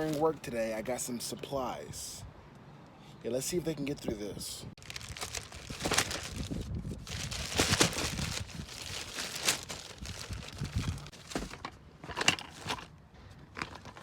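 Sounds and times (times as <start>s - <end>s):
plastic crinkling and rustling: 4.8s - 12.9s.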